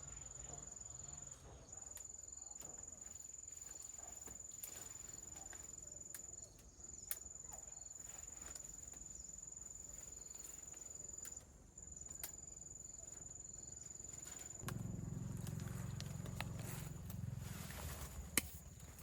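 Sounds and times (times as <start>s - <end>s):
faint clicks: 14.5s - 17.2s.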